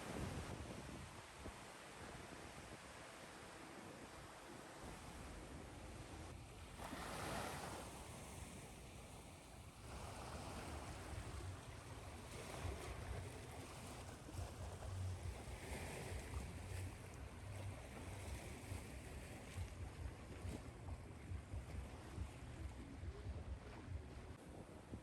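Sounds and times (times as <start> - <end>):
ocean surf washing: 0.0 - 24.3
low rumble: 14.5 - 24.4.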